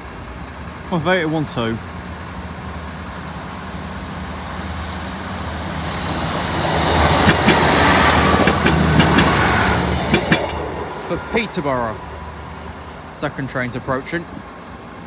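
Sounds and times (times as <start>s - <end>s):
diesel train rumble passing: 0.0s - 15.0s
thin high whine: 5.7s - 8.6s
wheels clacking over rail joints: 5.7s - 11.6s.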